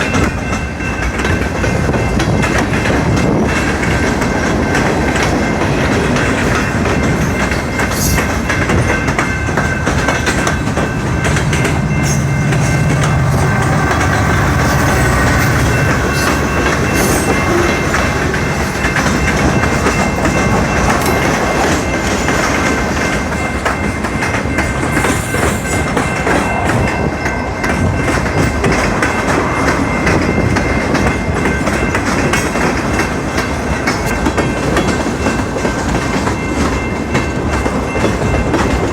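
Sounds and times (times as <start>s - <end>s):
train wheels clattering over rail joints: 0.0s - 38.9s
high wheel squeal: 10.1s - 19.6s.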